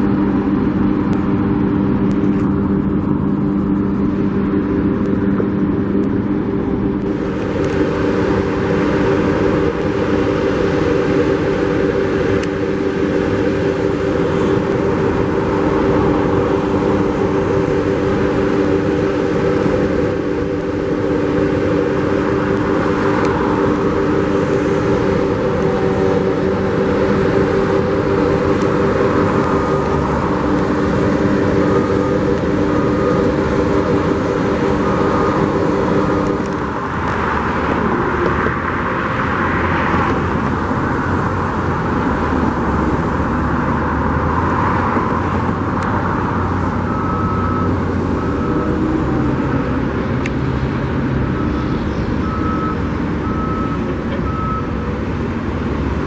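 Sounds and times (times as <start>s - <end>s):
heavy machinery running: 0.0s - 56.0s
reversing alarm beeping: 7.0s - 37.0s, 45.9s - 49.7s, 51.2s - 54.9s.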